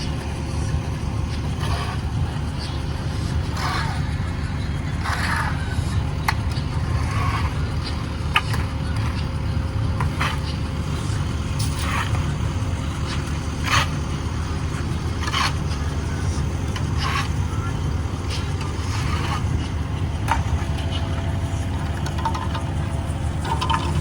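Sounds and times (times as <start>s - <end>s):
diesel paving machinery rumbling: 0.0s - 24.0s.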